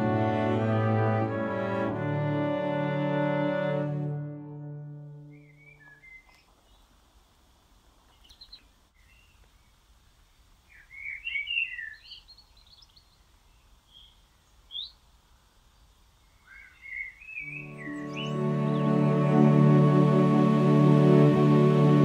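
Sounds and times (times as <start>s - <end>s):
faint outdoor background noise: 0.0s - 22.0s
songbirds chirping and twittering: 5.2s - 19.4s
sharp bird call: 16.5s - 19.0s.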